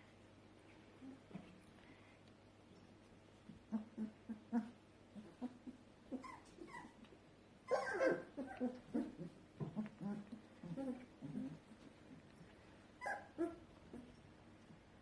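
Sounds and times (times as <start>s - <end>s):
puppies whimpering and squealing: 3.7s - 7.0s, 7.7s - 11.6s, 13.0s - 14.2s.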